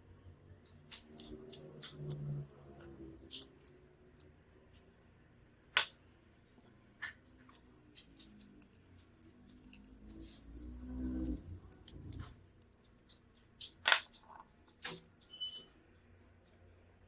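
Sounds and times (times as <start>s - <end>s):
repair tools clicking and tapping: 0.5s - 2.4s, 3.3s - 3.8s, 11.2s - 15.1s.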